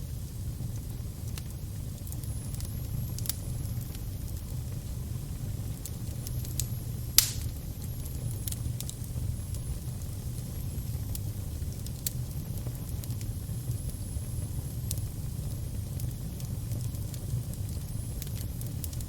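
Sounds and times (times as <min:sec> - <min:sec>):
fire crackling: 0:00.0 - 0:19.0
sharp pops and snaps: 0:07.2 - 0:07.6.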